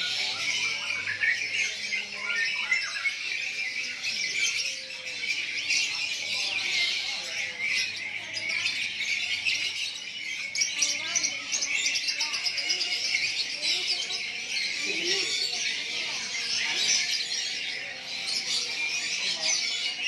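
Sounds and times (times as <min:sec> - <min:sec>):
caged birds chirping and squawking: 0:00.0 - 0:20.0.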